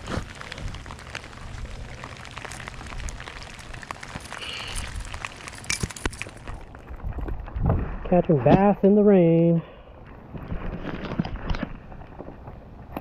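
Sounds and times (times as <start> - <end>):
rain pattering: 0.0 - 13.0
wind rumble on microphone: 4.7 - 8.8.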